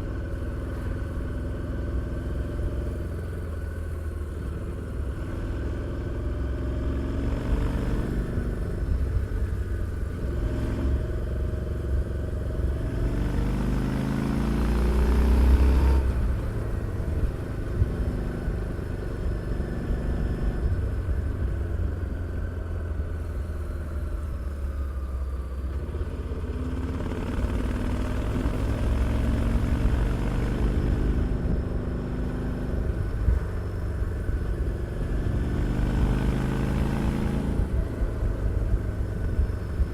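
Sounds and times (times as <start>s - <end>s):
motorcycle engine revving: 0.0s - 22.2s, 25.6s - 39.9s.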